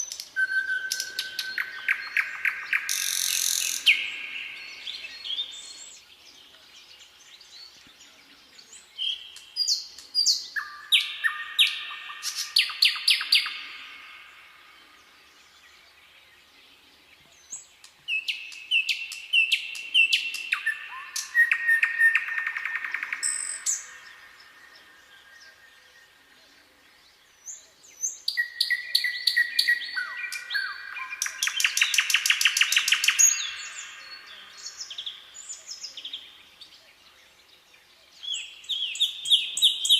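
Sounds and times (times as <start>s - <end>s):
songbird whistling and trilling: 0.0s - 6.0s, 9.0s - 13.8s, 17.5s - 24.3s, 27.5s - 35.9s, 38.3s - 39.9s.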